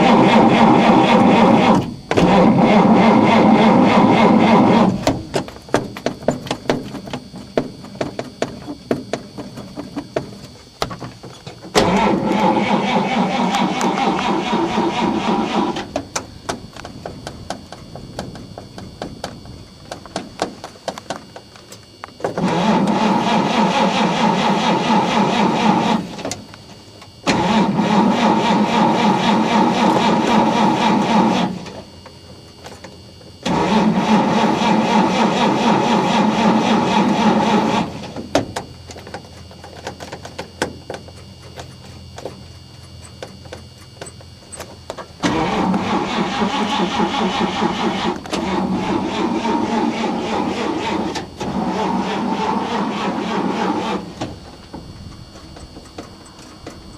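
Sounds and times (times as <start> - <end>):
car engine cranking on starter: 0.0 - 5.9, 11.7 - 16.2, 22.2 - 26.5, 27.2 - 31.9, 33.4 - 38.6, 45.2 - 54.6.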